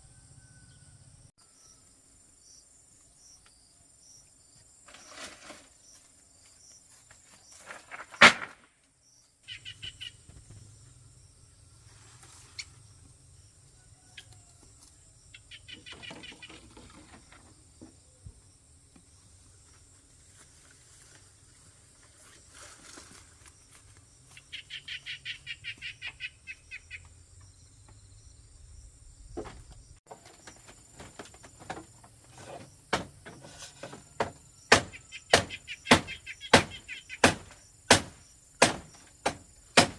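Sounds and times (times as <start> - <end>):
birds chattering: 30.1 - 39.9
sharp knocks: 31.0 - 39.9.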